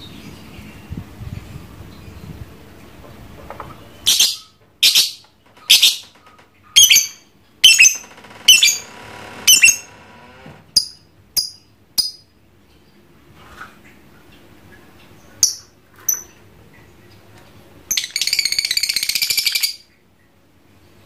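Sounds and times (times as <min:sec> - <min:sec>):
lovebird squawking: 0:04.1 - 0:08.9, 0:09.5 - 0:09.9.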